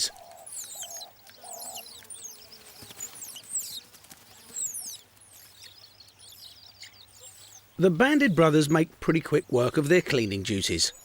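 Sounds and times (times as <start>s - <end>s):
high-pitched bird chirps: 4.5s - 7.8s.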